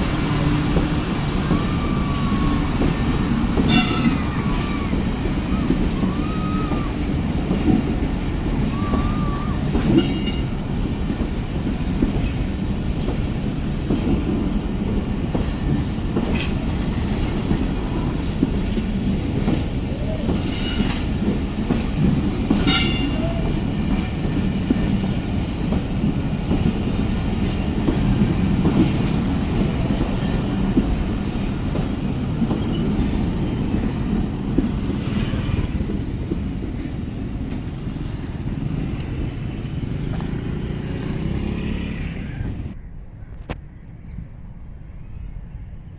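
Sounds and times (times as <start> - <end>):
train rumbling past: 0.0 - 45.9.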